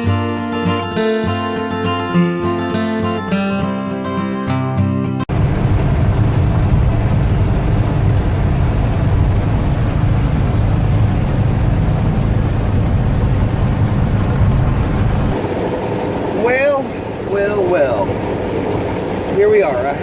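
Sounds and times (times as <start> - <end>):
road noise: 5.3 - 20.0
van engine rumble: 5.3 - 20.0.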